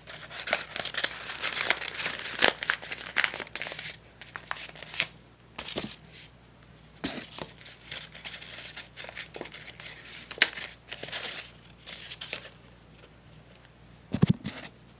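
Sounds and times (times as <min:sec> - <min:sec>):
sharp paper crackle: 0:00.0 - 0:05.1, 0:07.3 - 0:12.6
paper crinkling and rustling: 0:00.0 - 0:06.3, 0:07.0 - 0:14.8.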